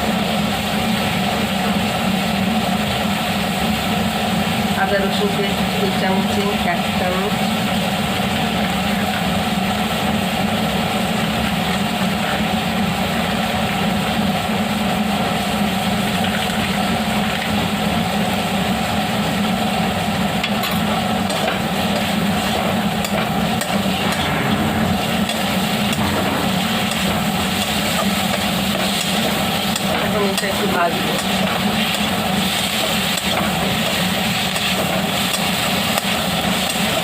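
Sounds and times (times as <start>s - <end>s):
mince frying in oil: 0.0s - 37.0s
steady low hum: 22.2s - 32.3s.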